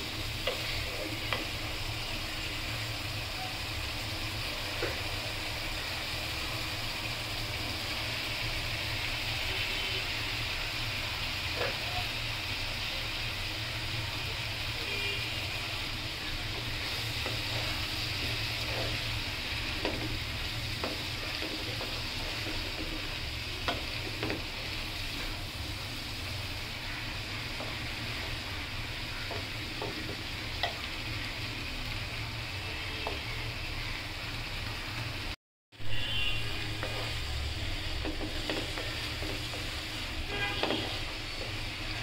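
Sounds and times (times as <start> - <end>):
spring onions sizzling in a pan: 0.0 - 42.0
spatula tapping a pan: 0.4 - 1.6, 16.5 - 24.6, 29.2 - 30.9, 38.0 - 40.0, 40.6 - 41.7.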